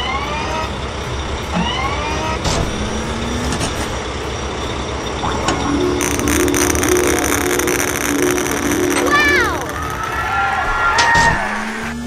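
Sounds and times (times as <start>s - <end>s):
excavator engine running: 0.1s - 12.0s
rising hydraulic whines: 1.5s - 12.0s
rising low tone: 5.2s - 10.4s.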